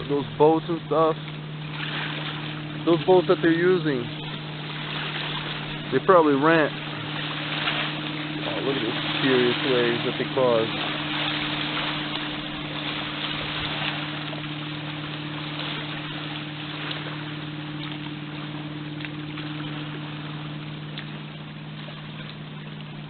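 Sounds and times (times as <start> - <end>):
motorboat engine humming: 0.0 - 23.0
water rushing from wake: 0.0 - 23.0.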